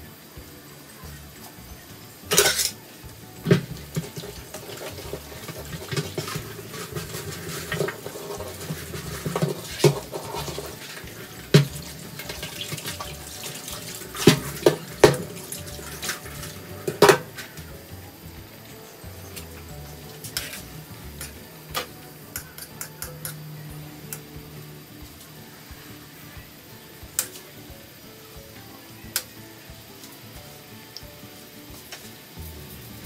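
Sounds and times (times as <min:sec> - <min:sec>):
sauce splashing: 0:02.2 - 0:23.5.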